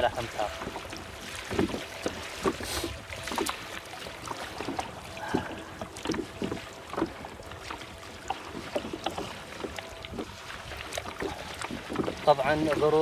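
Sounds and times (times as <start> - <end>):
kayak paddles splashing: 0.0 - 13.0
wind hiss on microphone: 2.4 - 3.4.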